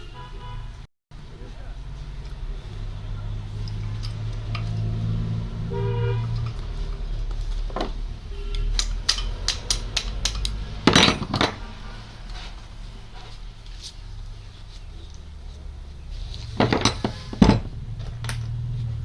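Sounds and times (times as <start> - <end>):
metal tools clinking and tapping: 3.6 - 4.7, 8.8 - 11.6, 16.6 - 18.5.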